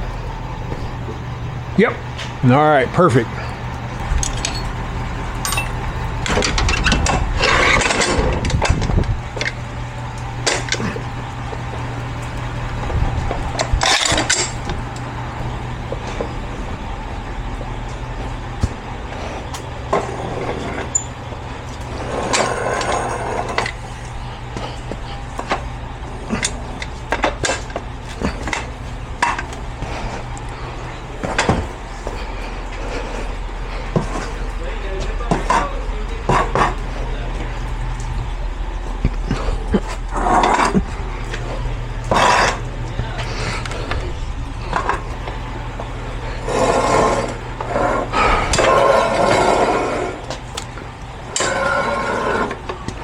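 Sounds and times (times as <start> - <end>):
steady low hum: 0.0 - 53.0
truck engine idling: 0.0 - 53.0
metallic clanking and rattling: 4.0 - 9.7, 12.9 - 14.8.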